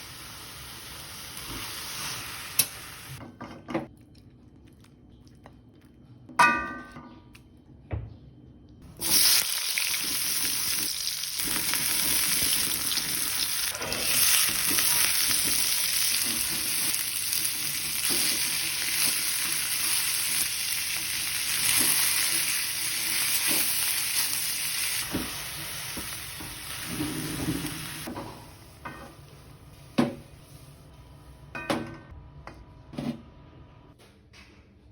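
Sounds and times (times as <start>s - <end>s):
food sizzling in hot oil: 9.0s - 28.1s.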